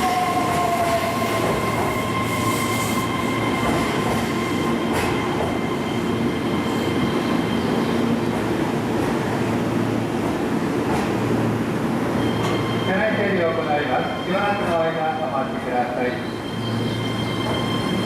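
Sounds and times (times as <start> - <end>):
train wheels rumbling: 0.0 - 12.8.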